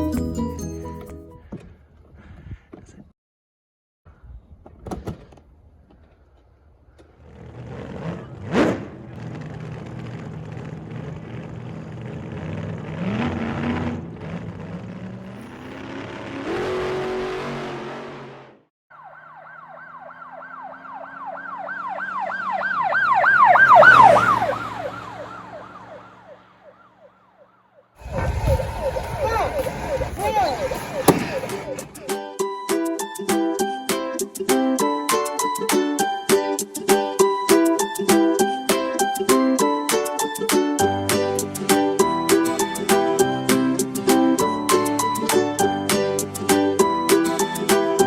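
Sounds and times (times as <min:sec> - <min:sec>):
rumbling noise: 0:28.0 - 0:31.8
toy police siren wailing: 0:28.0 - 0:32.1.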